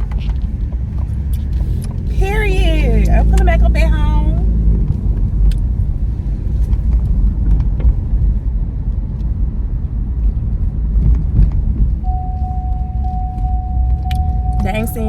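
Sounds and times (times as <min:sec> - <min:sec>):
car road and engine rumble: 0:00.0 - 0:15.0
steady beep: 0:12.0 - 0:15.0.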